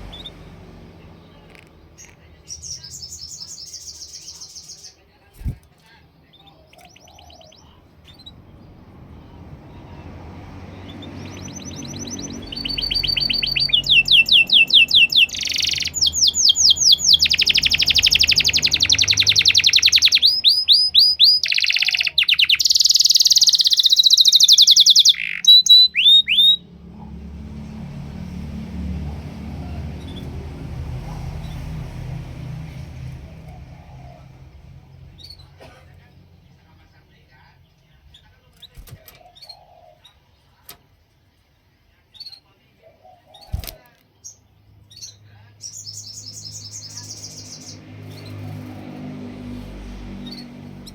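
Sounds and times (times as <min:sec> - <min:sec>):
canary singing trills: 0:00.0 - 0:05.5, 0:06.1 - 0:26.9, 0:29.1 - 0:35.6, 0:36.4 - 0:40.6, 0:42.0 - 0:50.9
low background rumble: 0:00.0 - 0:19.3.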